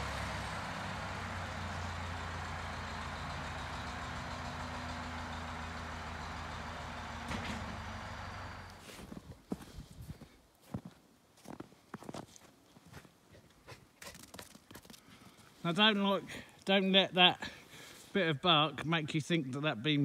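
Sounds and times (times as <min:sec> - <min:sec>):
engine running: 0:00.0 - 0:08.9.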